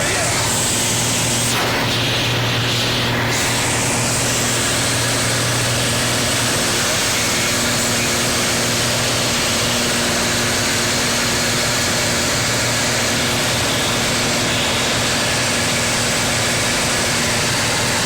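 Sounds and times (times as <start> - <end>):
airplane cabin engine drone: 0.0 - 9.8.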